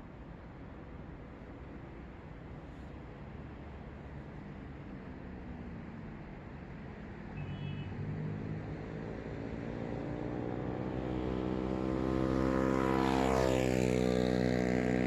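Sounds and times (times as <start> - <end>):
vehicle engine passing by: 8.0 - 15.0.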